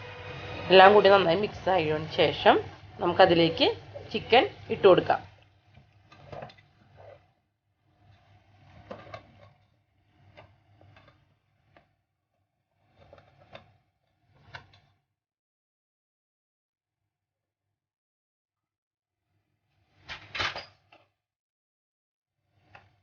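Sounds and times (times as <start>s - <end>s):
low steady hum: 0.0s - 5.5s
spoon scraping in cooking pan: 2.6s - 7.3s.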